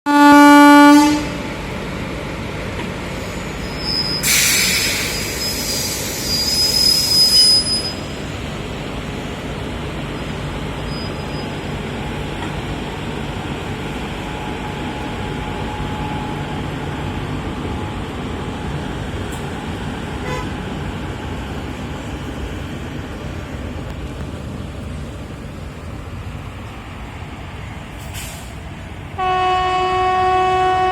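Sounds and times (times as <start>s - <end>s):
train horn blast: 0.1s - 1.4s, 20.2s - 20.6s, 29.2s - 30.9s
train running rumble: 0.1s - 30.9s
loud hiss with high tone: 3.5s - 8.2s.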